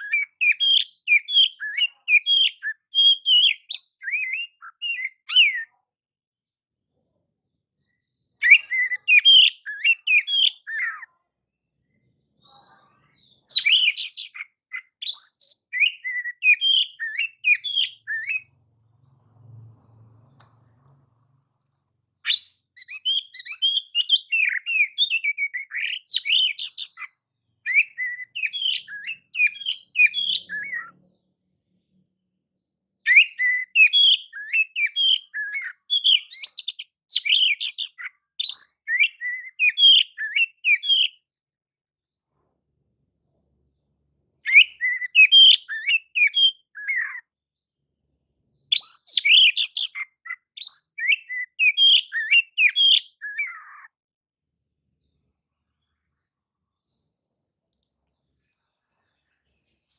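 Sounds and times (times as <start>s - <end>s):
bird singing whistled phrases: 0.0s - 5.7s, 8.4s - 11.1s, 13.2s - 18.5s, 22.2s - 27.1s, 27.7s - 31.0s, 33.0s - 41.2s, 44.5s - 47.2s, 48.7s - 53.9s.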